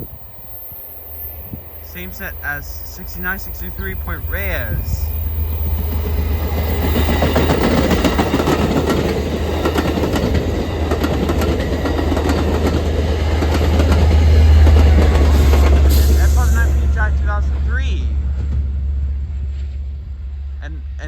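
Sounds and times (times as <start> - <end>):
train low rumble: 0.0 - 21.0
train wheels clacking over rail joints: 5.3 - 16.2.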